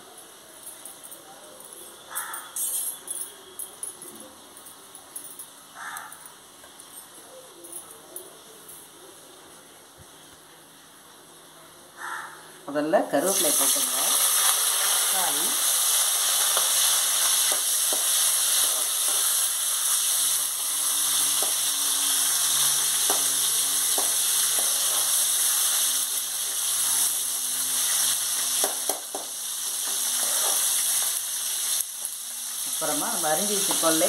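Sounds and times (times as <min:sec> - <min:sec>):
vegetables sizzling in hot oil: 0:13.1 - 0:34.0.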